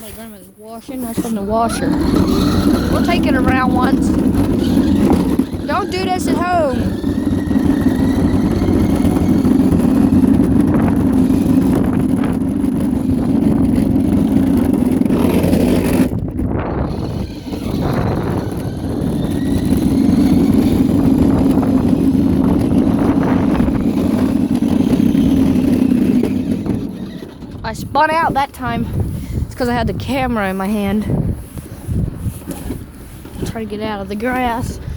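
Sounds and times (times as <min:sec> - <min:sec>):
scooter engine rumble: 0:00.0 - 0:34.9.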